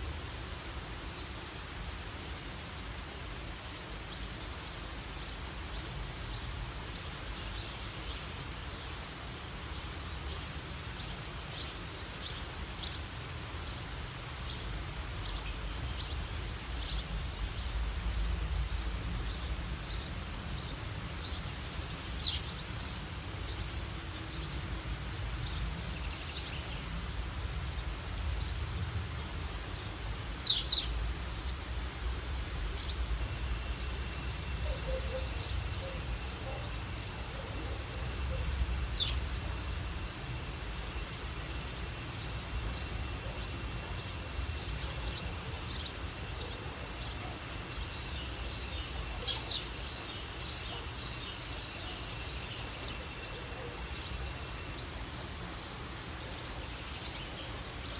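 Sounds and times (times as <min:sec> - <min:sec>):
high insect trill: 0:00.0 - 0:57.9
low rumble of wind: 0:00.0 - 0:57.9
bird chirps: 0:29.9 - 0:31.0, 0:34.6 - 0:36.7, 0:44.2 - 0:55.3.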